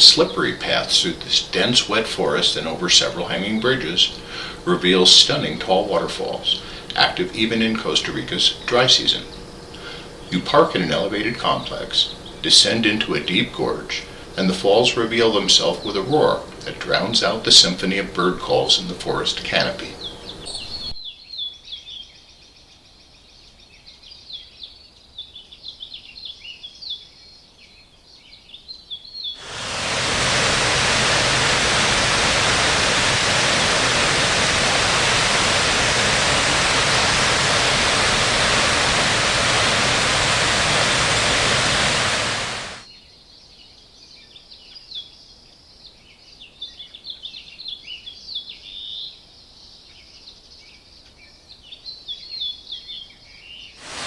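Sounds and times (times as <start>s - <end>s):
birds chirping and calling: 20.5s - 21.0s
waterfall roaring: 29.4s - 42.8s.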